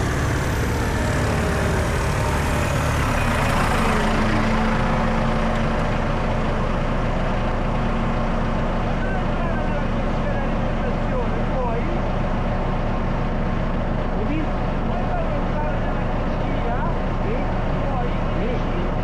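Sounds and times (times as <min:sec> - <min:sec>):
drone propellers whirring: 0:00.0 - 0:04.4.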